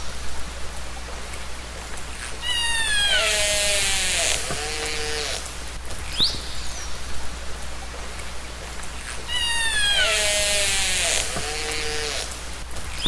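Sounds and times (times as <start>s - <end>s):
underwater hiss: 2.2s - 5.8s, 9.0s - 12.7s
orca call gliding downward: 2.3s - 5.4s, 9.2s - 12.3s
orca whistle: 2.4s - 5.4s, 9.3s - 12.2s.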